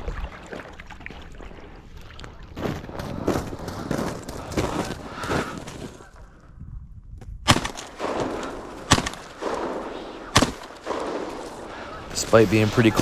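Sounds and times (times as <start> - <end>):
shotgun shots: 7.5 - 13.0.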